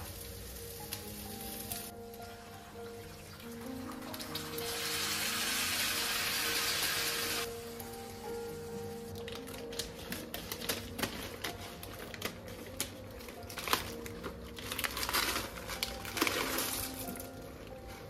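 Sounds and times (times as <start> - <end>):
faint background music: 0.0 - 18.0.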